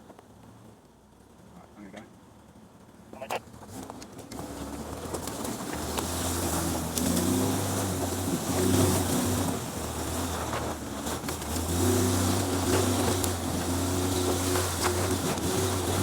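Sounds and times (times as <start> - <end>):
engine pulling under load: 3.4 - 16.0.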